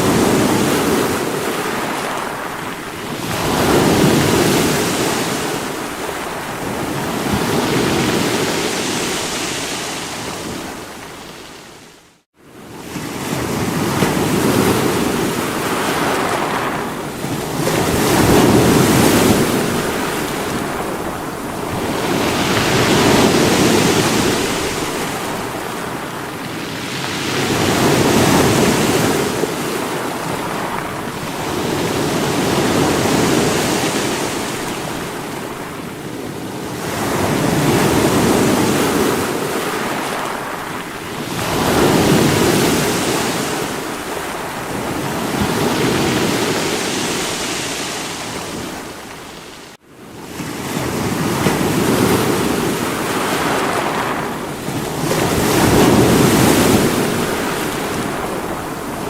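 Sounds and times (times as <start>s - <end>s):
sea waves breaking on rocks: 12.8s - 49.8s, 50.4s - 59.0s.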